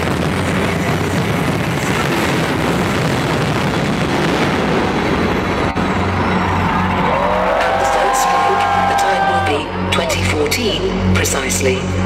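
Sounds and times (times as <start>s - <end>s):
fireworks crackles and bangs: 0.0s - 6.9s.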